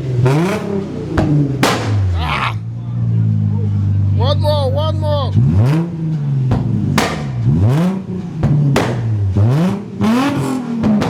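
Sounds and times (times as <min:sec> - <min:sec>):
car engine revving: 0:00.0 - 0:11.0
sharp engine cracks: 0:00.2 - 0:02.2.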